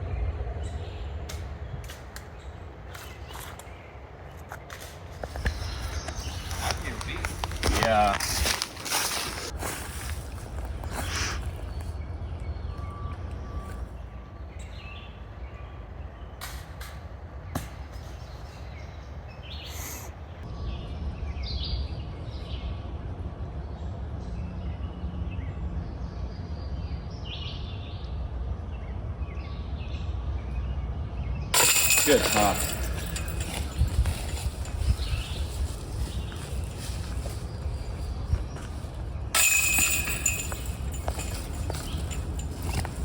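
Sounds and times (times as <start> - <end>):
birds chirping: 0.0 - 20.4, 31.6 - 43.0
steady low rumble: 32.6 - 43.0.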